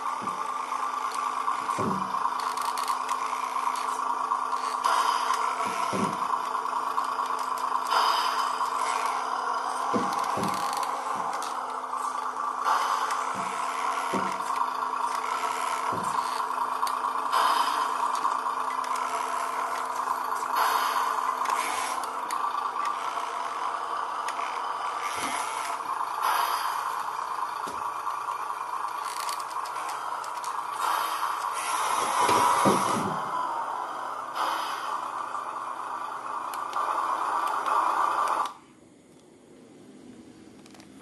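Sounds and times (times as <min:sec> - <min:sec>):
toy truck motor and gears: 0:00.0 - 0:39.2, 0:40.2 - 0:41.0
knocks: 0:01.7 - 0:02.2, 0:04.8 - 0:06.4, 0:07.9 - 0:11.8, 0:12.7 - 0:14.6, 0:15.2 - 0:16.4, 0:31.9 - 0:33.4.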